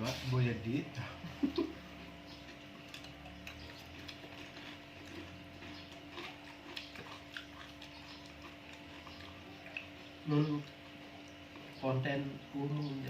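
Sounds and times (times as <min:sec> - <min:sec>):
steady low hum: 0:00.0 - 0:13.0
chewing with small clicks and pops: 0:01.9 - 0:11.8.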